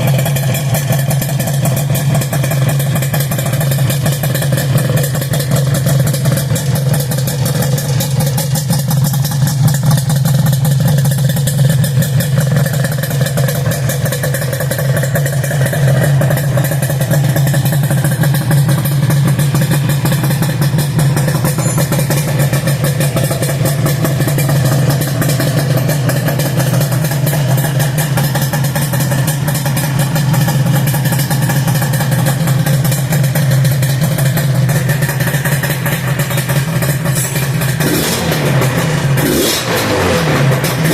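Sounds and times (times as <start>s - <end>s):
two-stroke motorcycle engine idling: 0.0s - 40.9s.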